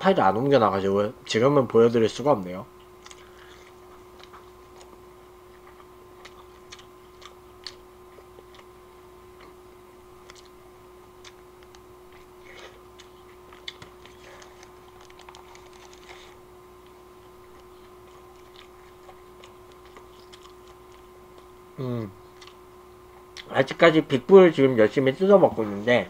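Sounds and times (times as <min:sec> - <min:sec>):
steady low hum: 0:00.0 - 0:26.0
person chewing food: 0:02.8 - 0:23.5
paper wrapper crinkling: 0:14.0 - 0:16.4.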